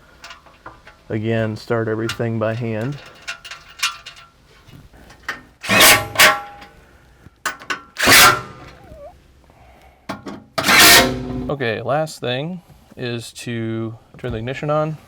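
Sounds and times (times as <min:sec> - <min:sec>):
metal clatter and scraping: 0:00.0 - 0:06.8, 0:07.5 - 0:08.8, 0:10.1 - 0:11.5.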